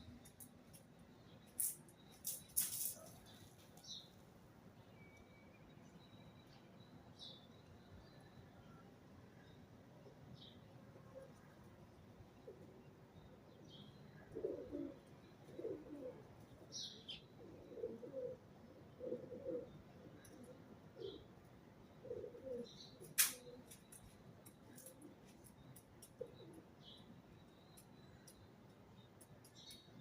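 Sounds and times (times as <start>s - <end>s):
pigeon cooing: 14.2s - 16.3s, 17.3s - 21.3s, 22.0s - 23.6s
sharp click: 23.0s - 25.0s.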